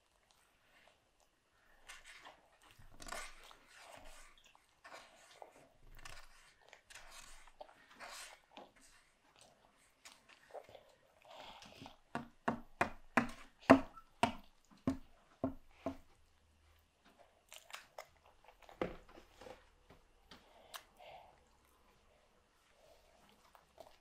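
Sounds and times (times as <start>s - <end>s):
toddler chewing with mouth smacks: 0.0s - 12.1s, 17.1s - 18.8s, 22.7s - 24.0s.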